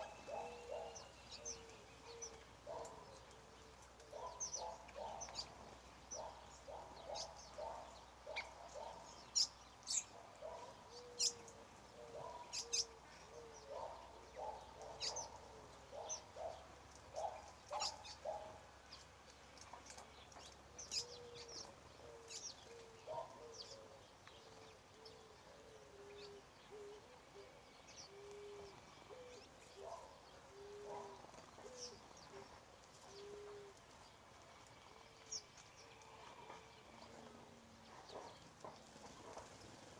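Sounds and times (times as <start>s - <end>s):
low hooting bird calls: 0.0s - 18.7s, 20.7s - 32.5s, 33.1s - 33.8s.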